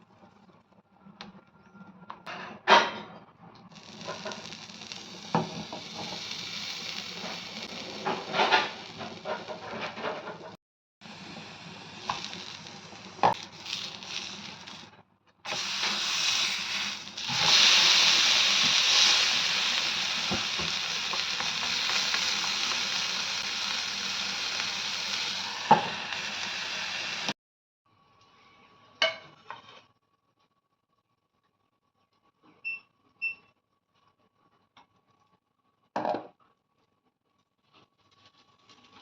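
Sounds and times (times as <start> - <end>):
food sizzling in hot oil: 3.7 - 10.4, 11.0 - 27.4.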